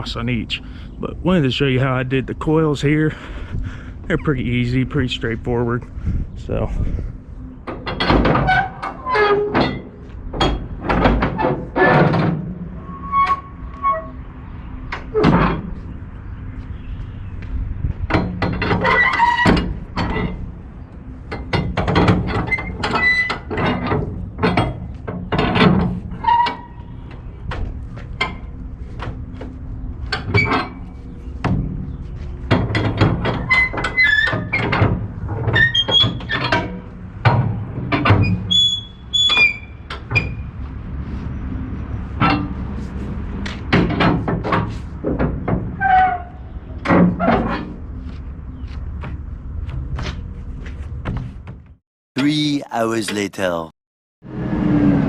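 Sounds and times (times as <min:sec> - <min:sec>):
metal knocks and clanks: 0:07.6 - 0:12.6.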